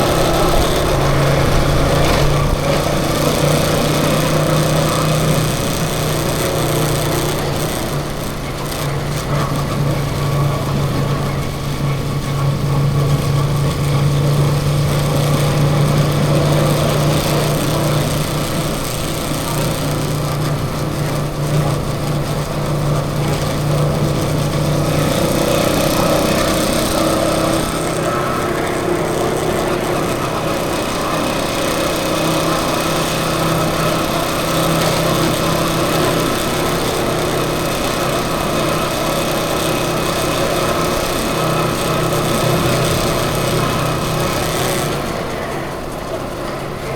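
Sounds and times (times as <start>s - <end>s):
road and wind noise: 0.0s - 46.9s
vehicle engine droning: 0.0s - 46.9s.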